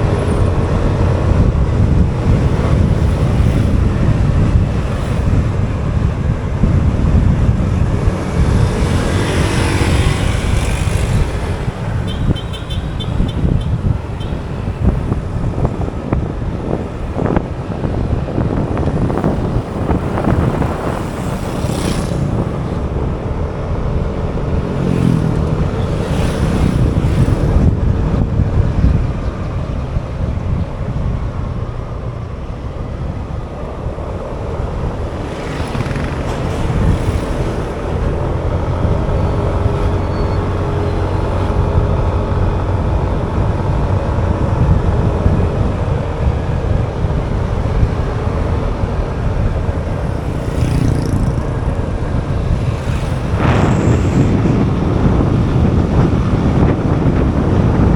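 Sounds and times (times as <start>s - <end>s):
road and wind noise: 0.0s - 57.9s
motorcycle engine running: 34.3s - 56.7s.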